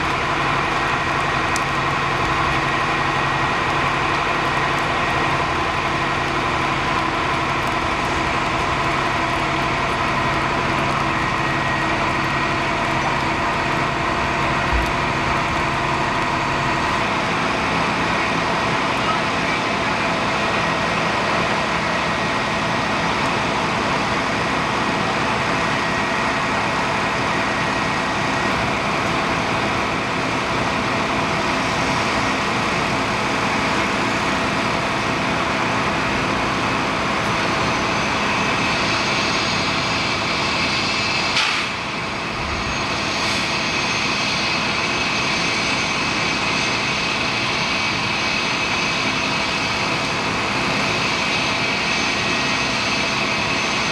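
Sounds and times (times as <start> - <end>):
heavy vehicle engine idling: 0.0 - 53.9.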